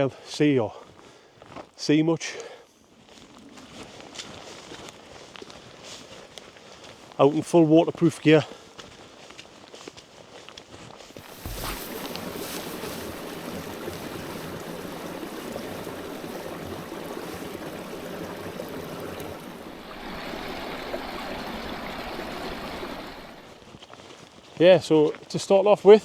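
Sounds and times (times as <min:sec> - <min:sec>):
stream water rushing: 0:11.2 - 0:23.6.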